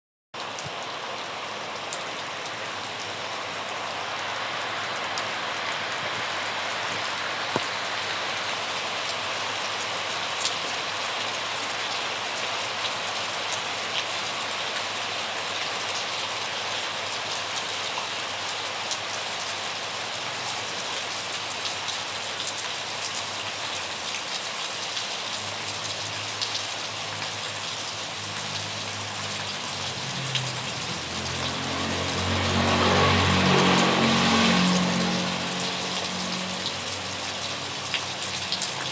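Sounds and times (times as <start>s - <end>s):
rain falling: 0.4s - 38.9s
raindrops ticking: 25.4s - 38.9s.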